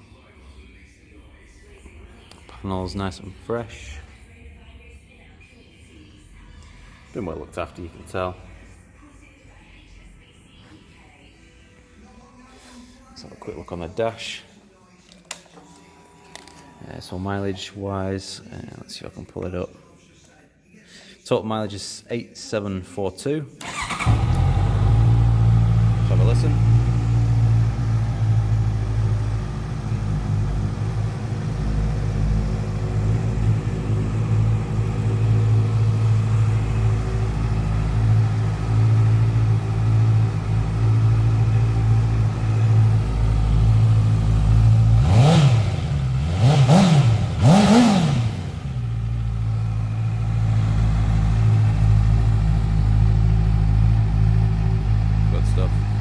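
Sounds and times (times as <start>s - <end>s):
engine throttle blips: 23.6s - 56.0s
motorcycle engine idling: 23.6s - 56.0s.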